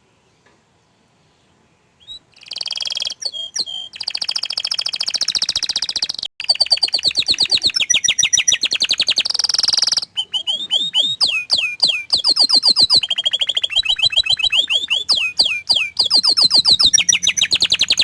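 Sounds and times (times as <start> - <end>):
canary singing trills: 2.0 - 18.0
downward-sliding bird notes: 10.2 - 18.0.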